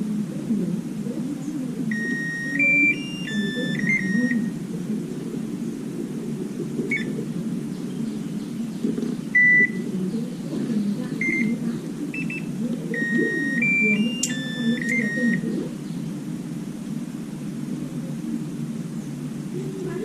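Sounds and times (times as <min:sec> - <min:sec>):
steady low hum: 0:00.0 - 0:20.0
electronic device beeps: 0:01.9 - 0:04.5, 0:06.9 - 0:07.2, 0:09.4 - 0:09.8, 0:11.2 - 0:11.5, 0:12.1 - 0:15.5.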